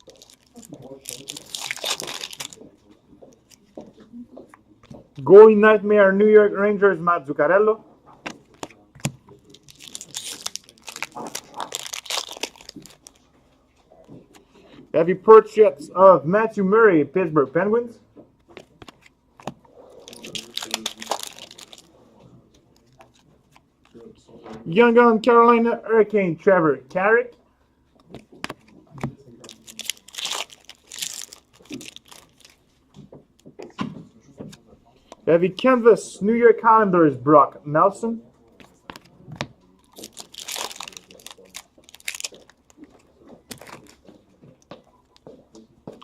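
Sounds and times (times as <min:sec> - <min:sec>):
foil wrapper crinkling and tearing: 0:00.0 - 0:02.7, 0:09.4 - 0:13.2, 0:20.0 - 0:21.9, 0:29.2 - 0:32.6, 0:39.8 - 0:42.8, 0:43.4 - 0:44.0.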